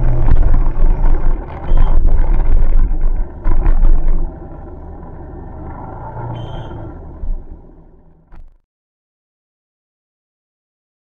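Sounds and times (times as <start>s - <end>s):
motorcycle engine rumble: 0.0s - 8.6s.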